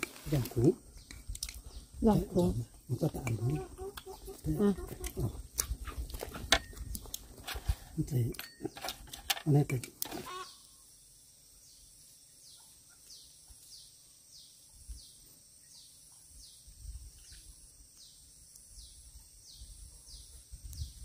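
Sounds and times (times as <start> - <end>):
insect hum: 0.0 - 21.0
bird calling: 0.6 - 5.4, 10.0 - 10.8.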